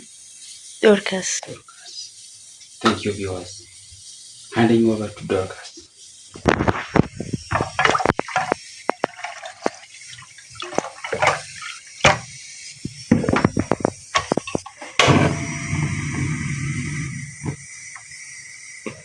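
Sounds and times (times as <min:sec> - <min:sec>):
water running: 0:00.0 - 0:19.0
kitchen utensils clattering: 0:06.5 - 0:09.9, 0:10.6 - 0:12.4, 0:13.0 - 0:17.6.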